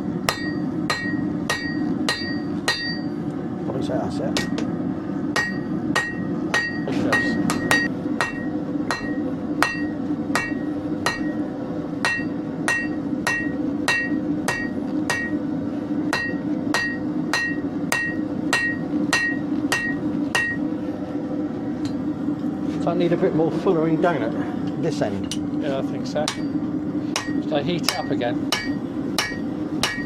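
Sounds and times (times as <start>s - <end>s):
steady low hum: 0.0s - 30.0s
hammer striking hot steel on anvil: 0.2s - 3.2s, 4.3s - 4.7s, 5.3s - 20.7s, 26.2s - 30.0s.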